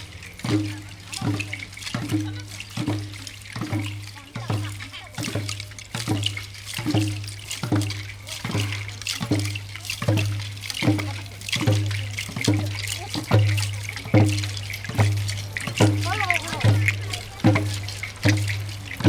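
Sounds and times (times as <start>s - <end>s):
hand drums beating: 0.0s - 19.0s.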